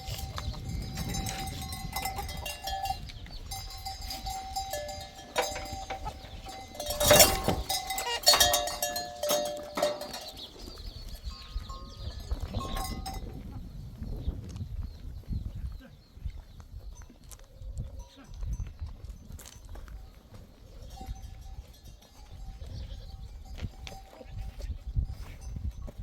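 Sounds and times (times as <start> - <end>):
livestock bells clinking: 0.0 - 13.4, 20.7 - 26.0.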